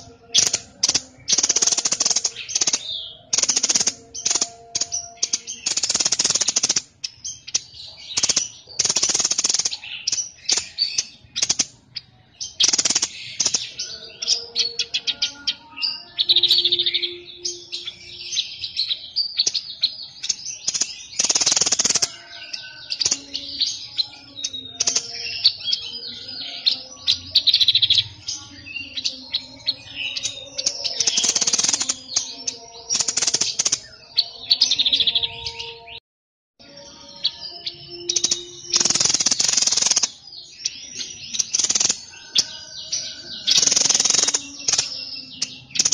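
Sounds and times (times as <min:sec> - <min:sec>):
songbird singing: 0:00.0 - 0:36.0, 0:36.6 - 0:45.9
harsh rasping bird calls: 0:37.2 - 0:45.9.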